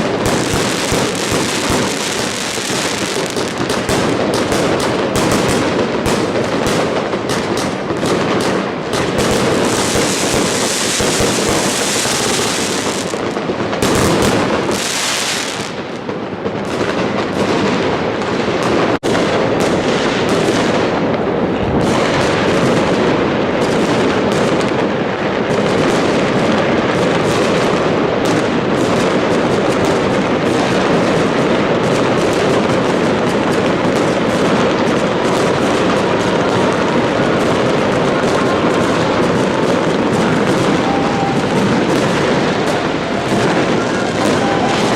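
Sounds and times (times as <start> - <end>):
fireworks bangs and crackles: 0.0 - 44.9
high hissing crackle: 9.4 - 13.5.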